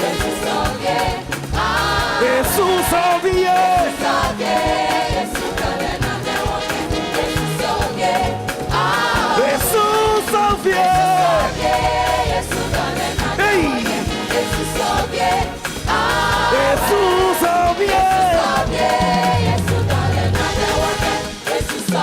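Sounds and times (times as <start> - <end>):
gospel band playing: 0.0 - 22.0
person singing: 13.3 - 14.1, 16.4 - 22.0.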